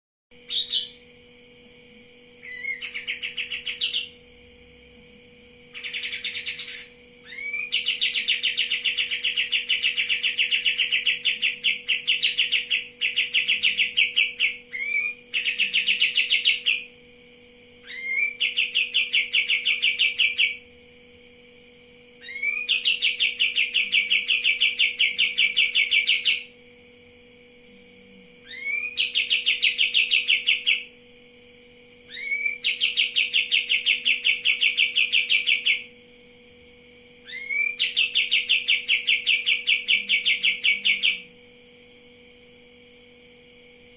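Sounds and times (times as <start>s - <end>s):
faint steady hum: 0.3s - 43.9s
songbird singing rapid trills: 0.4s - 1.0s, 2.4s - 4.2s, 5.7s - 16.9s, 17.8s - 20.6s, 22.2s - 26.5s, 28.4s - 30.9s, 32.1s - 35.9s, 37.2s - 41.3s.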